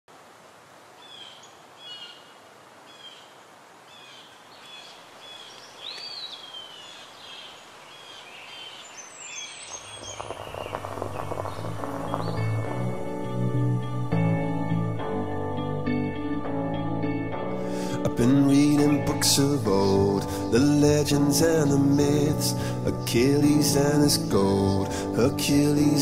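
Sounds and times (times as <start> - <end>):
soft outdoor hiss: 0.1 - 16.4, 17.3 - 26.0
small birds chirping: 1.0 - 13.4, 18.6 - 24.9
music: 10.7 - 26.0.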